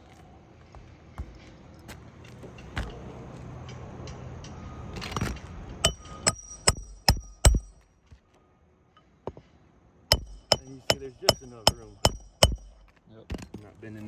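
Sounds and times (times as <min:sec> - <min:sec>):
hammer striking roofing nail: 0:05.2 - 0:07.8, 0:10.1 - 0:13.0.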